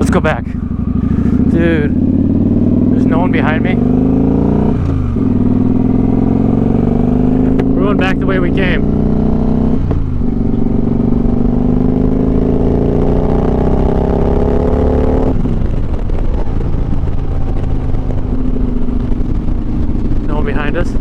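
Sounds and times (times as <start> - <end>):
rough rushing noise: 0.0 - 8.8
motorcycle engine accelerating: 0.0 - 21.0.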